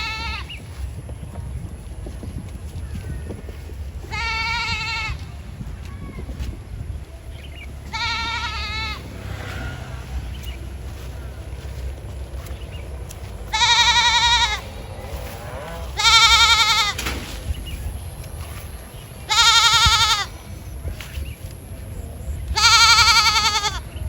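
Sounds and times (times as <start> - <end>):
animal bleating: 0.0 - 0.6, 4.1 - 5.2, 7.9 - 9.8, 13.5 - 17.0, 19.3 - 20.4, 22.5 - 24.0.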